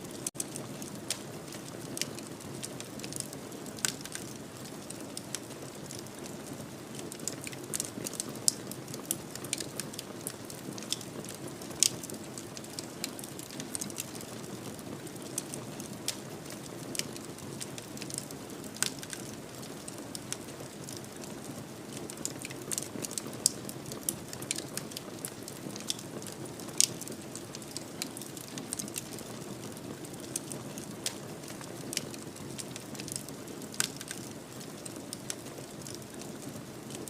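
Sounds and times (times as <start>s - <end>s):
fireplace fire crackling: 0.0s - 37.0s.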